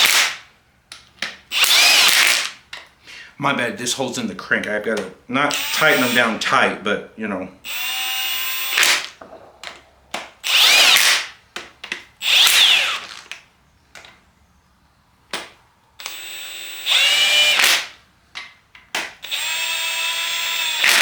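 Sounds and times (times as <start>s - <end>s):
cordless power tool whirring: 1.5s - 2.6s, 5.5s - 6.4s, 7.6s - 9.6s, 10.4s - 11.4s, 12.2s - 13.4s, 16.0s - 17.9s, 19.1s - 21.0s
clicks: 8.6s - 13.4s.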